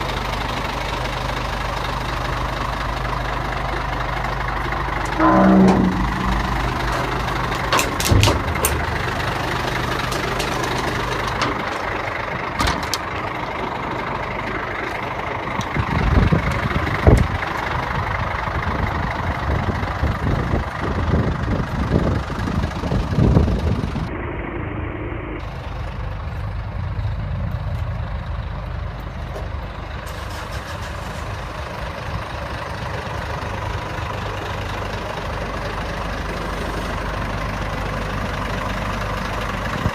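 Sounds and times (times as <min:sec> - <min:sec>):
diesel truck engine idling: 0:00.0 - 0:39.9
knocks and clunks: 0:05.0 - 0:09.0.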